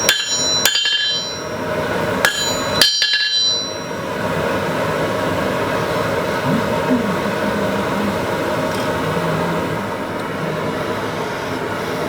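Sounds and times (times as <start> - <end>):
hammer ringing on steel: 0.0 - 1.6, 2.2 - 4.0.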